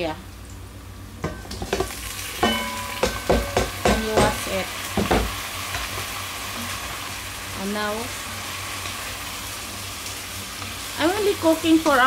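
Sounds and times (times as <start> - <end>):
chicken sizzling in pot: 0.6 - 12.0
metallic clanks against pot: 1.2 - 4.4.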